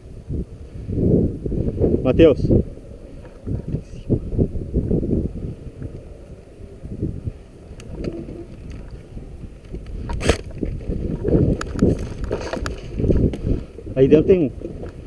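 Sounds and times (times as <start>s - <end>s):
rumbling wind: 0.0s - 15.0s
camera handling noise: 9.6s - 13.3s
faint clicks: 9.6s - 13.5s.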